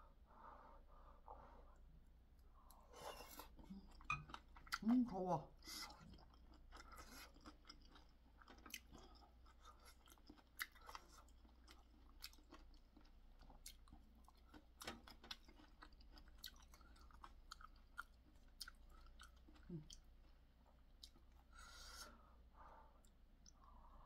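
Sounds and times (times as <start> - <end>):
faint wet chewing: 2.3 - 5.0, 5.6 - 22.0.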